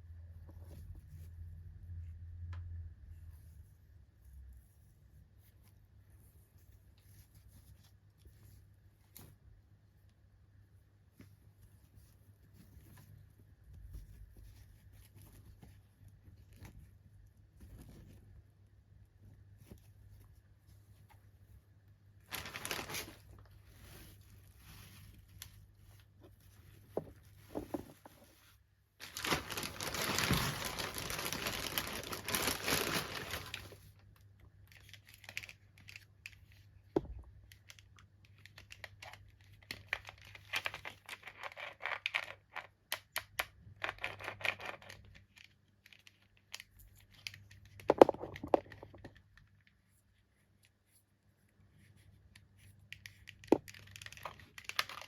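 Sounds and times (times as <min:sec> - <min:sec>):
packaging tearing: 0:22.3 - 0:23.2, 0:29.0 - 0:33.8
packaging crinkling and clicking: 0:22.3 - 0:23.3, 0:29.0 - 0:33.8.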